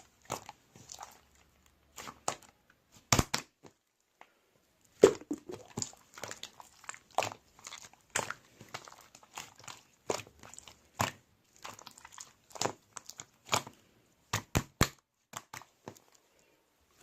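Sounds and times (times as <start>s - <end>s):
crisp crunches and crinkles: 5.5s - 14.0s.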